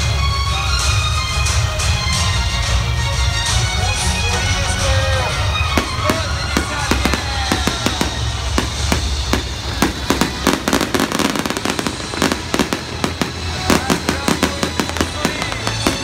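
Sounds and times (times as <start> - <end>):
music playing: 0.0 - 16.0
fireworks bangs and crackles: 4.6 - 16.0.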